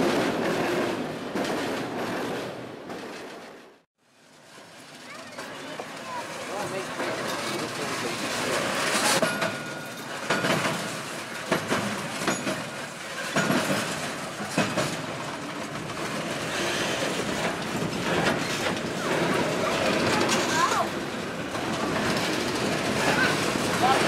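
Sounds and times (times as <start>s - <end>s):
freight train rumble: 0.0s - 24.0s
train wheels clanking on crossings: 0.0s - 24.0s
wheel squeal: 16.4s - 20.9s.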